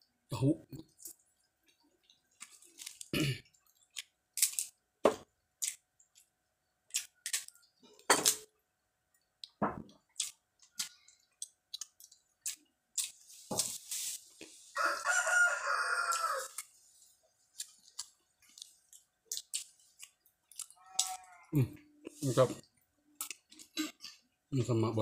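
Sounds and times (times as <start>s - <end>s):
person chewing wet mouth sounds: 9.4s - 13.2s, 17.5s - 22.2s.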